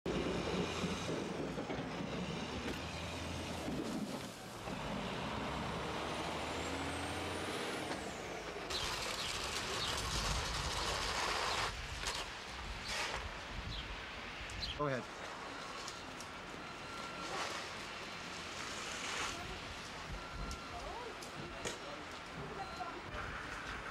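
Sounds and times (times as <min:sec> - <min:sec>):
heavy vehicle engine running: 0:00.1 - 0:11.7.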